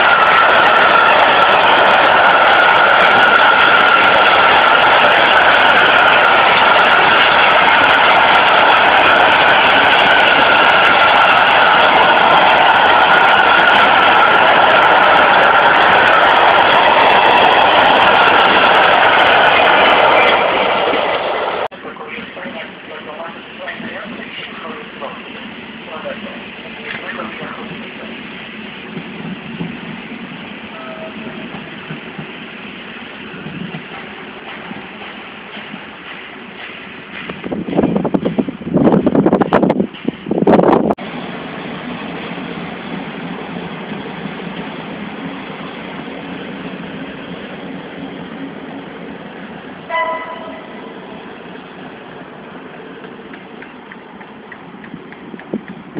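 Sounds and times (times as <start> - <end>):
train rumbling along rails: 0.0 - 55.9
train horn blast: 30.7 - 31.3, 49.9 - 50.9.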